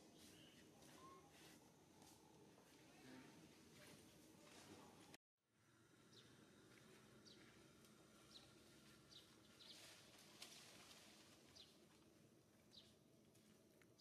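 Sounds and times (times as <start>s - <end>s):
small bird chirping: 12.7s - 13.0s.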